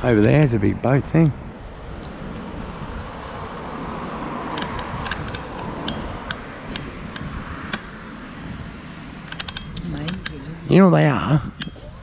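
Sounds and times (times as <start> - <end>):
wind rumbling on microphone: 0.0 - 12.0
sharp clicks: 9.3 - 10.4.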